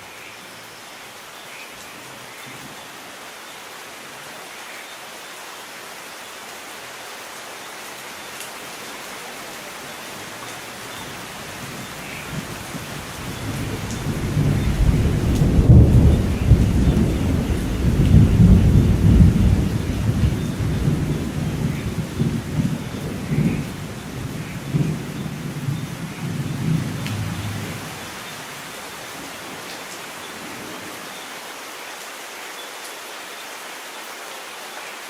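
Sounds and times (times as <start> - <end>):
steady rain hissing: 0.0 - 35.0
rolling thunder: 11.8 - 28.0.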